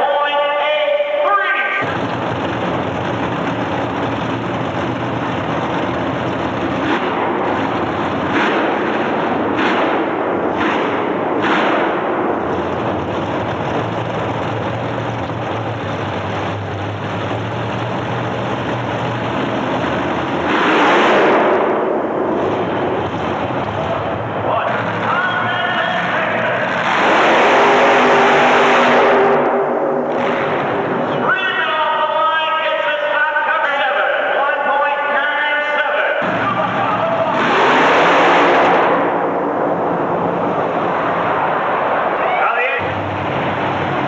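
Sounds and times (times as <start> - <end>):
racing truck engine at full throttle: 1.1 - 44.0
sharp engine cracks: 1.8 - 15.6.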